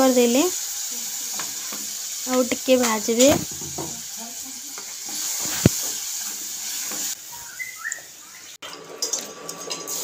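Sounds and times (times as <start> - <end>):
paste sizzling in hot oil: 0.0 - 10.0.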